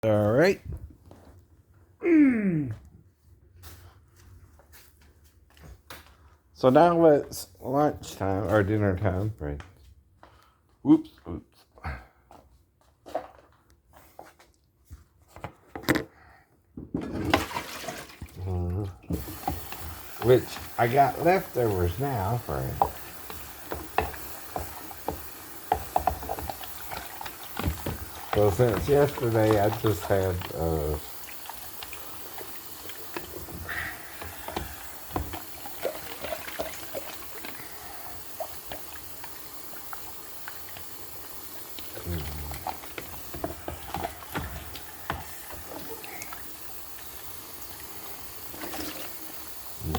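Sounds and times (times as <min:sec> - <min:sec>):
tap water running: 0:17.0 - 0:49.9
steady hiss: 0:19.1 - 0:49.9
dishes knocking and clattering: 0:22.8 - 0:31.2, 0:42.6 - 0:45.7.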